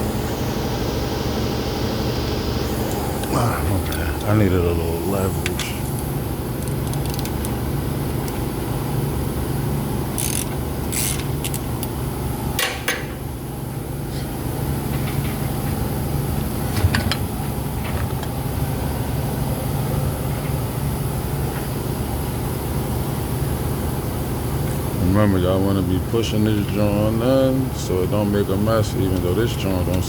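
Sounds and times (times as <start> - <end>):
steady low hum: 0.0 - 30.0
wrench clinking and scraping: 10.2 - 12.0.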